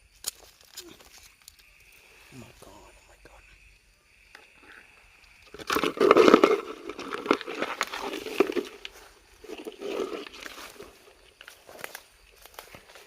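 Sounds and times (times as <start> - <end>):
rustling and crackling: 5.2 - 13.0.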